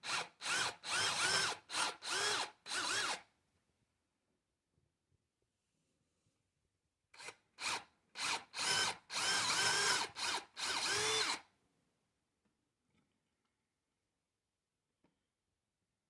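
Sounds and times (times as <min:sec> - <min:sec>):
power drill drilling into wood: 0:00.0 - 0:03.2, 0:07.2 - 0:11.5.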